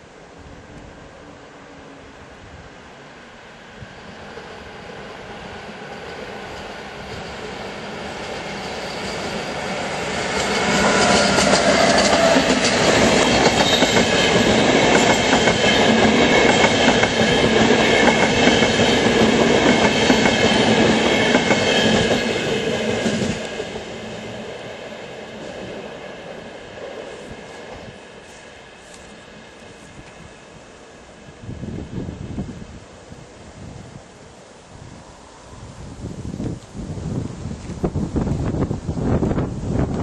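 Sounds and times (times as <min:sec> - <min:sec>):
train wheels clicking over rail joints: 0:10.3 - 0:23.6.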